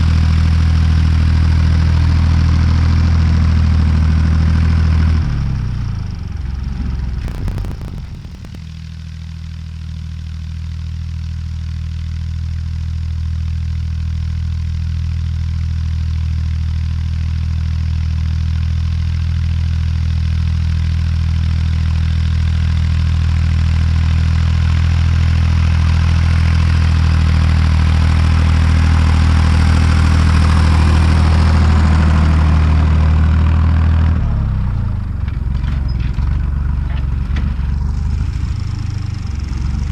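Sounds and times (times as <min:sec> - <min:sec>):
clicks: 0:07.2 - 0:08.6.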